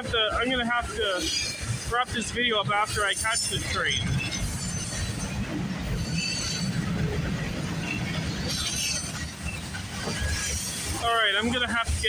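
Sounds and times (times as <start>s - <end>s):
steel wheels rumbling on rails: 0.0s - 12.0s.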